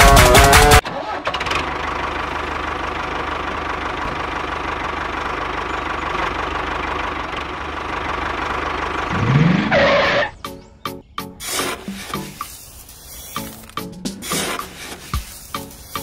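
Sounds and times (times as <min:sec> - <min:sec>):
tractor engine running: 0:00.0 - 0:10.4, 0:11.4 - 0:16.0.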